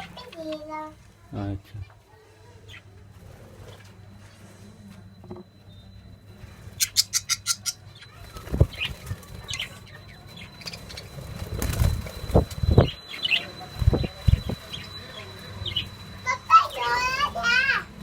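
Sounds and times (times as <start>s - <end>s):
wing flaps: 8.2s - 9.7s, 10.8s - 13.0s.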